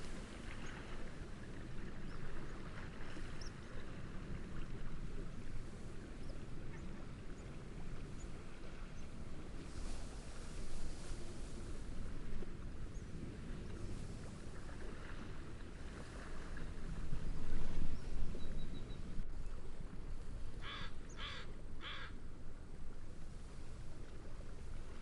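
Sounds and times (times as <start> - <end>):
gentle waves: 0.0 - 25.0
wind: 0.0 - 25.0
bird calling: 20.6 - 22.2.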